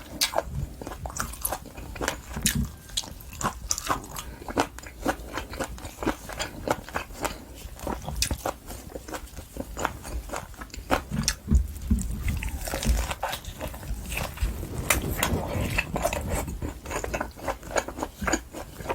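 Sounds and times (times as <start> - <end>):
person chewing steak: 0.0 - 14.3, 16.6 - 18.9
dull low thumps: 13.6 - 17.2.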